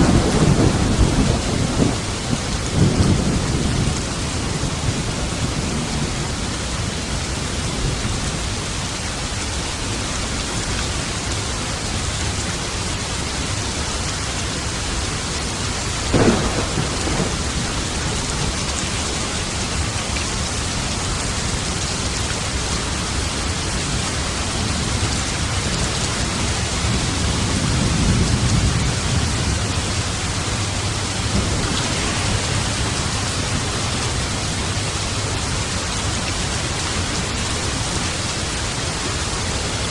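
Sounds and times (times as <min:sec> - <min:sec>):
sharp thunderclap: 0:00.0 - 0:06.1, 0:16.1 - 0:18.8, 0:26.9 - 0:34.9
low roll of thunder: 0:00.0 - 0:06.8, 0:16.1 - 0:20.0, 0:24.6 - 0:36.2
heavy rain hissing: 0:00.0 - 0:39.9.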